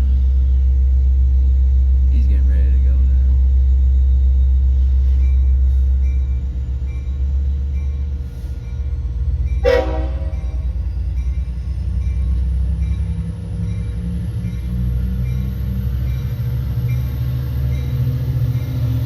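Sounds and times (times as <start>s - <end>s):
locomotive engine rumbling: 0.0s - 19.0s
train horn toot: 9.6s - 10.7s.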